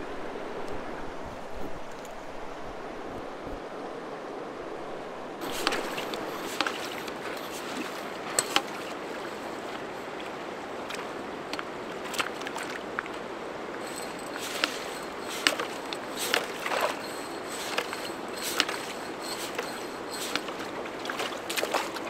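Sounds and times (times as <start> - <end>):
river water rushing: 5.4 - 22.0.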